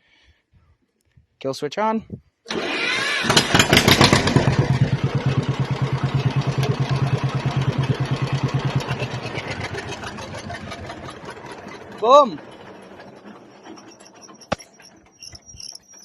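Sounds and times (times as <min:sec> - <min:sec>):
tractor engine putt-putt: 0:02.5 - 0:16.0.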